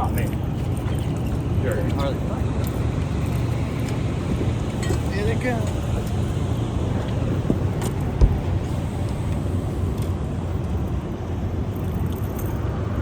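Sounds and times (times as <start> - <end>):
low rumble of wind: 0.0 - 13.0
dull thump: 7.4 - 8.5.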